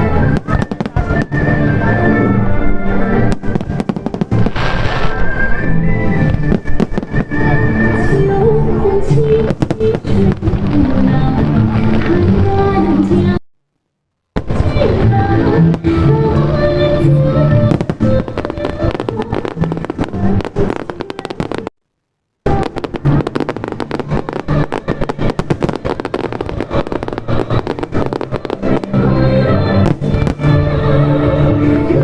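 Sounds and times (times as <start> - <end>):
fireworks bangs and crackles: 0.0 - 13.4, 14.4 - 21.7, 22.4 - 32.0
loud music: 0.0 - 13.4, 14.4 - 20.8, 22.5 - 32.0.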